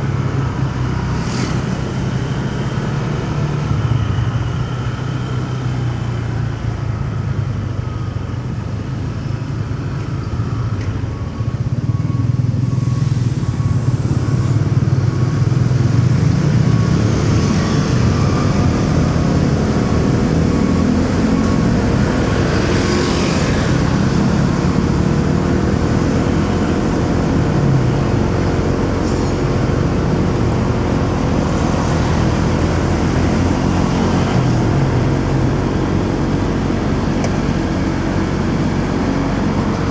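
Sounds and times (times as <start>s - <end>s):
motorcycle engine: 0.0s - 8.6s, 10.3s - 39.9s
traffic: 0.0s - 39.9s.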